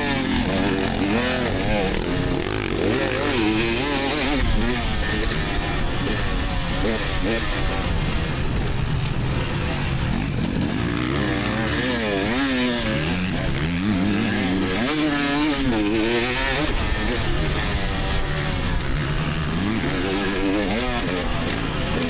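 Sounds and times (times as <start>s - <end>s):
two-stroke dirt bike revving: 0.0s - 22.0s.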